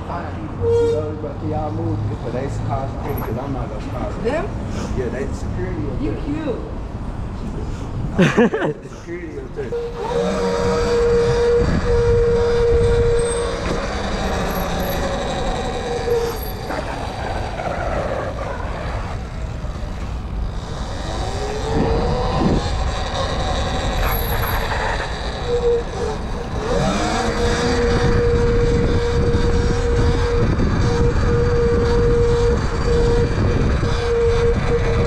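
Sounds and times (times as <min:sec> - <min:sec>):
wind rumble on microphone: 0:09.6 - 0:35.0
electric motor whine: 0:09.7 - 0:18.6, 0:19.2 - 0:35.0.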